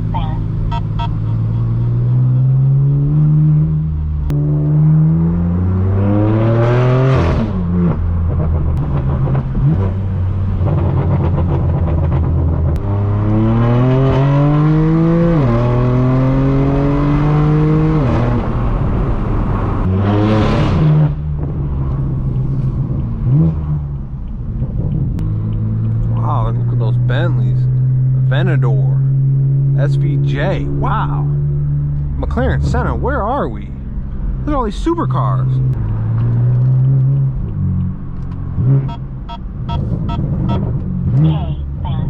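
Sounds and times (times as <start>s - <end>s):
car engine revving through gears: 0.5s - 42.0s.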